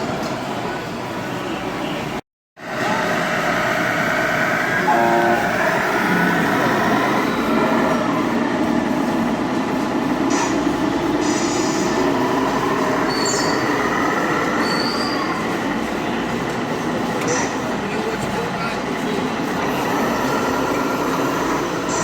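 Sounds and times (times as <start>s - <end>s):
steady mechanical hum: 0.0s - 22.0s
hydraulic pump whining: 2.7s - 8.6s, 10.6s - 22.0s.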